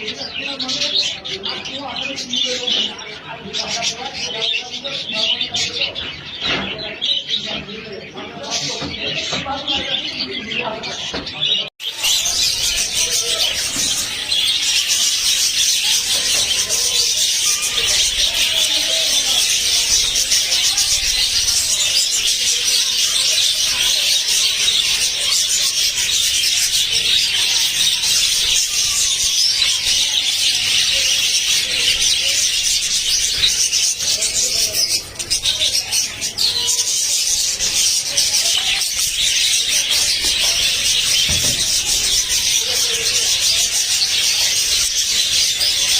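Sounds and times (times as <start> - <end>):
budgerigars chattering: 0.0 - 45.9.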